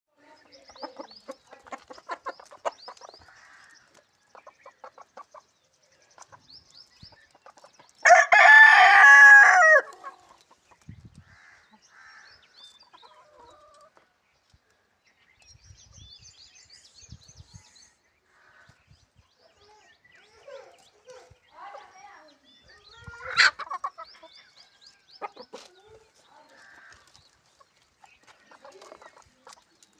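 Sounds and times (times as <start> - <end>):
chickens clucking: 0.3 - 8.3, 9.0 - 11.9, 12.6 - 14.2, 22.7 - 29.9
rooster crowing: 8.1 - 9.9
bird chirps: 15.1 - 29.9.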